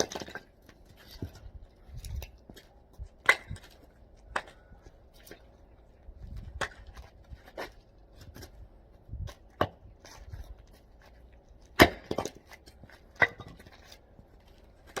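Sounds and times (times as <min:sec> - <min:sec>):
hatchet chopping wood: 0:11.7 - 0:12.4.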